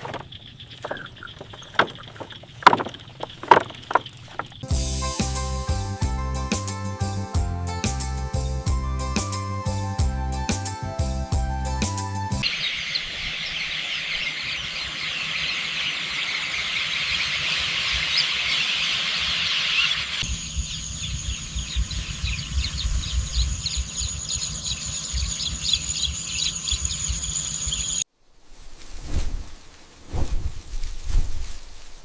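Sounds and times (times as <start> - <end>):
small birds chirping: 0.0 - 4.7, 12.4 - 28.1
wind rumble: 20.2 - 32.0.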